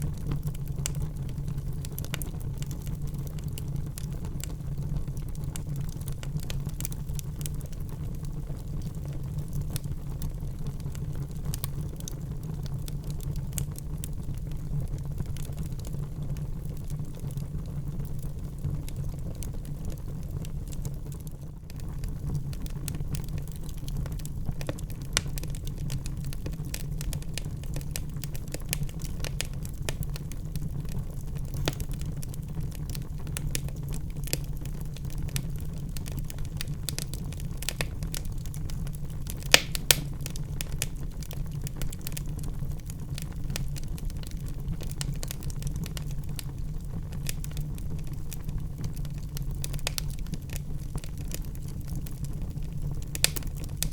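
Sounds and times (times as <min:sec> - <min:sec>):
low rumble of flames: 0:00.0 - 0:53.9
wood fire crackling: 0:00.0 - 0:53.9
loud fire pops: 0:22.0 - 0:46.1, 0:48.8 - 0:51.6, 0:52.2 - 0:53.9.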